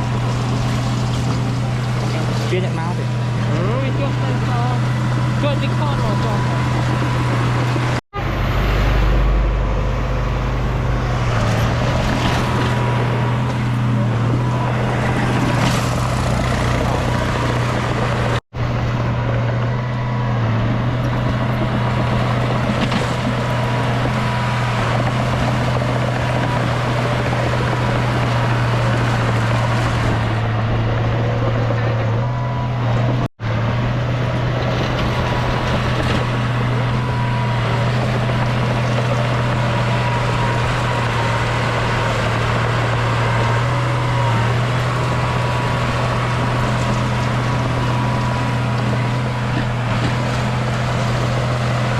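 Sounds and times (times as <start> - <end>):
bulldozer diesel engine running: 0.0 - 51.9.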